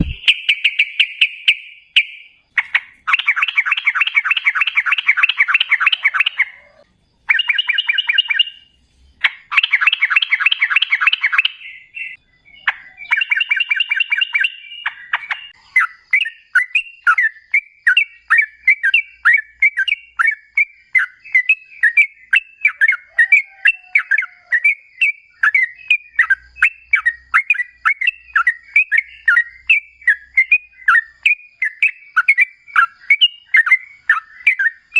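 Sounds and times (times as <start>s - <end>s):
bird trills and chirps: 0.0s - 34.9s.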